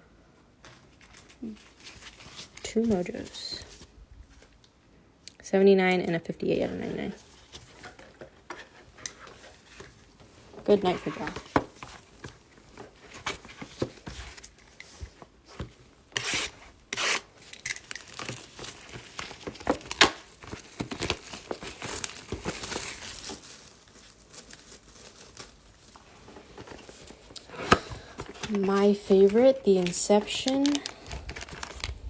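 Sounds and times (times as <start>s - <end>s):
card wrappers torn and crinkled: 16.2s - 32.0s.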